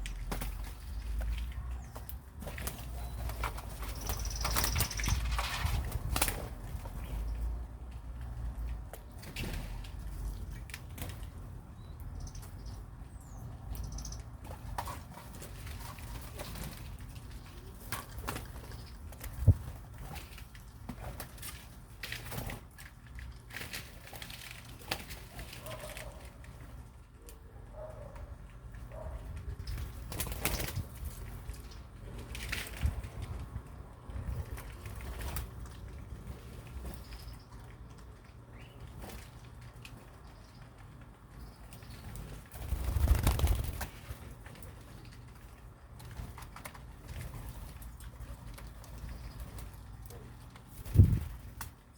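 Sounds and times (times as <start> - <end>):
small birds chirping: 0.1 - 5.4, 11.2 - 15.0, 17.3 - 19.6, 36.3 - 43.8, 47.9 - 51.3
birds rustling: 28.0 - 51.9.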